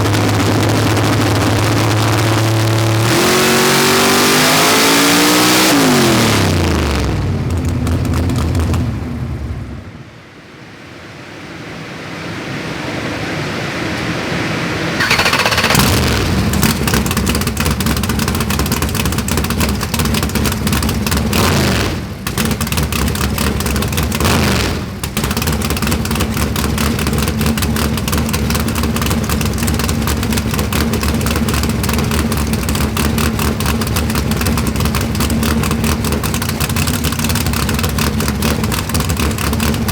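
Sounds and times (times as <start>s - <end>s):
drag car engine rough idle: 0.0s - 9.8s, 15.0s - 39.9s.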